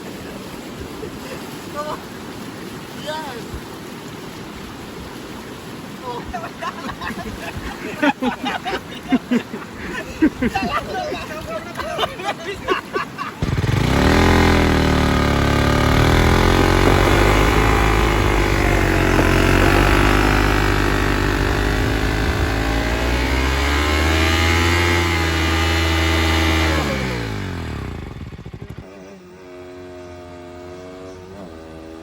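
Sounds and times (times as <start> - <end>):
motorcycle engine revving: 13.4 - 32.0
quiet engine hum: 13.4 - 32.0.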